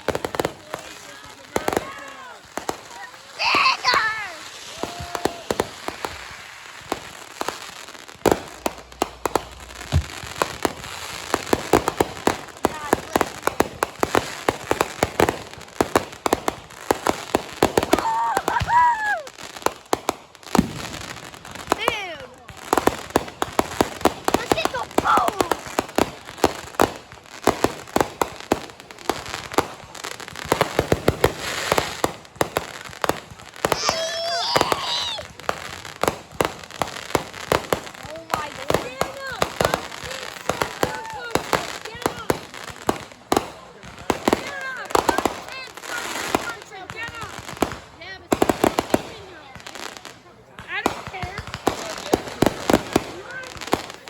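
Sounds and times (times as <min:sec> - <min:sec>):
fireworks popping and crackling: 0:00.0 - 0:54.0
firework bang: 0:08.2 - 0:14.0, 0:20.6 - 0:21.1.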